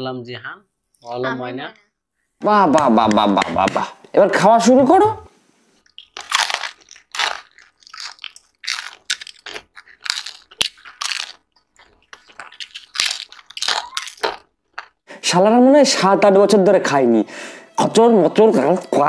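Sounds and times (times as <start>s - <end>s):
crunchy food being chewed: 5.8s - 15.0s.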